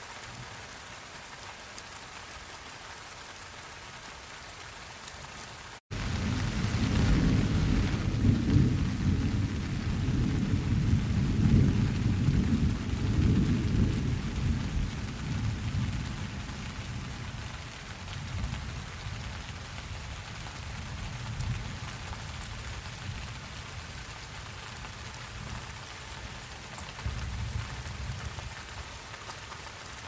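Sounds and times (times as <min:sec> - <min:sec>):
steady rain hiss: 0:00.0 - 0:30.0
rolling thunder: 0:05.9 - 0:17.5.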